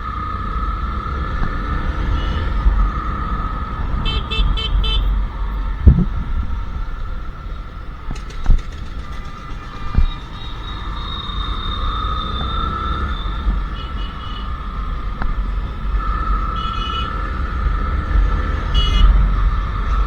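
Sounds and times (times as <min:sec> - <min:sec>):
motorcycle engine running: 0:00.0 - 0:13.8
wind and road noise: 0:00.0 - 0:20.0
vehicle horn short beeps: 0:04.0 - 0:05.1, 0:18.7 - 0:19.2.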